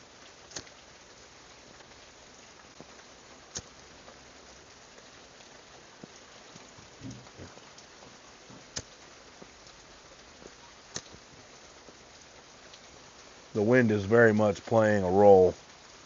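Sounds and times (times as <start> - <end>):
rain pattering: 0.0 - 16.0
soft low thumps: 6.7 - 8.8
sharp click: 10.9 - 11.2.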